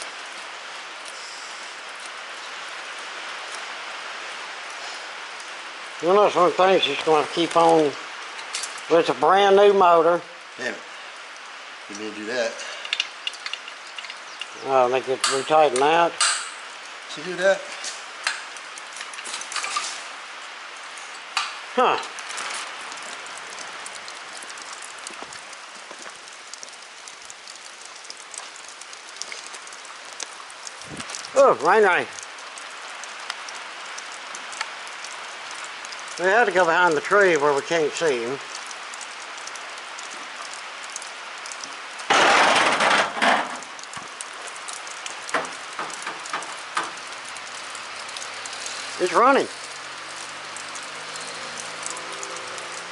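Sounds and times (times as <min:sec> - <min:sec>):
steady rain hiss: 0:00.0 - 0:52.9
drops ticking on surfaces: 0:12.8 - 0:17.0, 0:17.7 - 0:19.8, 0:20.9 - 0:52.9
scattered cracks: 0:40.4 - 0:47.1.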